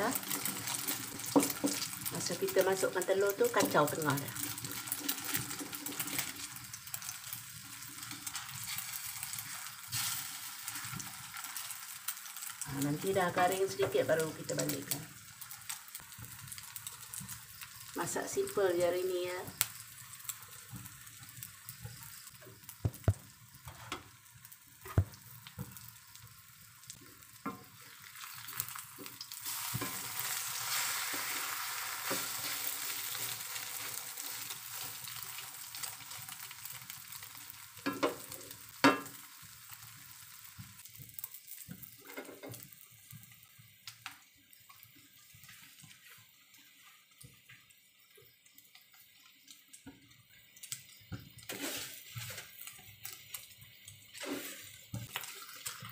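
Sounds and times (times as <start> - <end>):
omelette sizzling in oil: 0.0 - 55.9
wooden spatula scraping wok: 0.1 - 2.3, 3.4 - 7.0, 8.0 - 11.4, 27.5 - 35.1, 51.5 - 52.6, 54.1 - 55.9.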